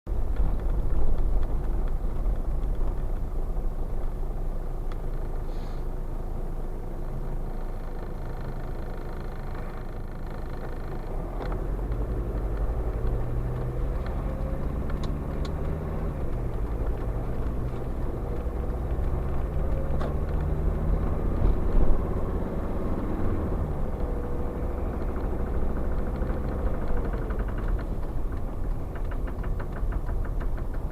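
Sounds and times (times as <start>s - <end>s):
diesel engine knocking: 7.1s - 30.9s.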